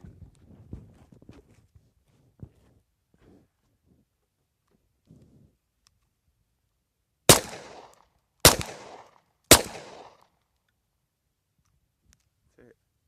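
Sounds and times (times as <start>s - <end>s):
gunshots with echo: 7.3s - 10.2s.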